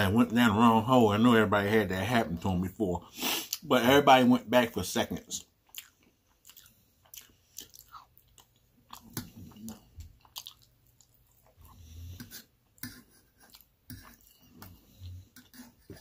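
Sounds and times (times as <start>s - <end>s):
mouth chewing clicks and smacks: 5.6s - 11.8s.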